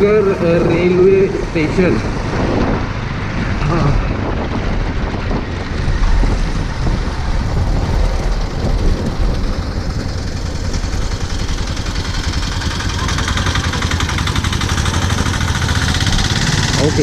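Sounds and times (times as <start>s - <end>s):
wind on microphone: 0.0s - 13.1s
small motorbike engine running: 0.1s - 17.0s.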